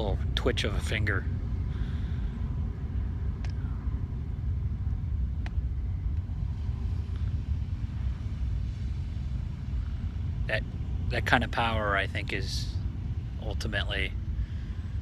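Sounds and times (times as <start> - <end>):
low rumble: 0.0 - 15.0
faint clicks: 3.4 - 3.6, 5.4 - 6.3.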